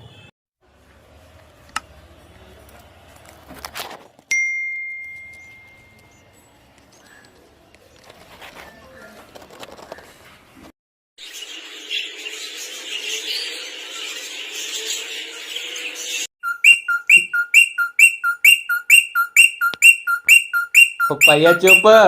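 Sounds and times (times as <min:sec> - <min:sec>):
pet birds chirping: 0:11.3 - 0:22.0
bird two-note chirp: 0:16.4 - 0:22.0.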